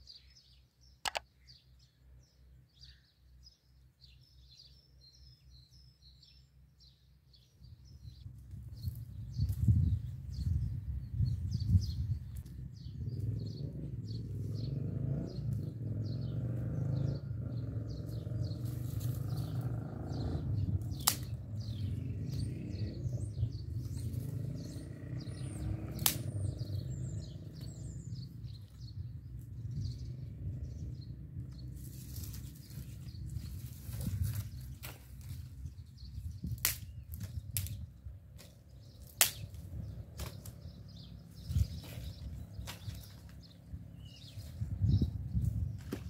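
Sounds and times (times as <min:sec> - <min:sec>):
small birds chirping: 0:00.0 - 0:46.0
steady low rumble: 0:17.2 - 0:46.0.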